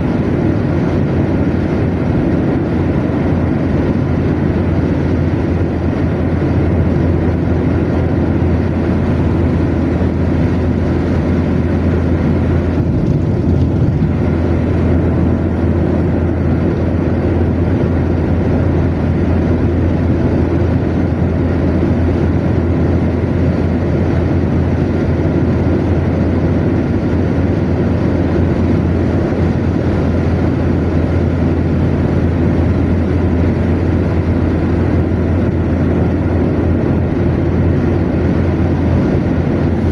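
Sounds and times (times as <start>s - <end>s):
car engine drone: 0.0s - 39.9s
tyre road noise: 0.0s - 39.9s.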